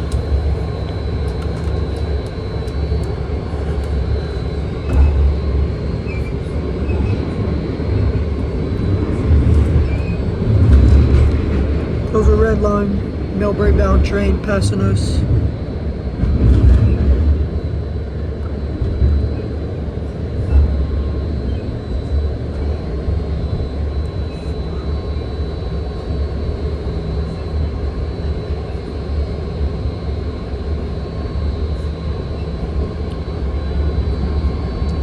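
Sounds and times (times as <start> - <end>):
train wheels rumbling on track: 0.0 - 24.1.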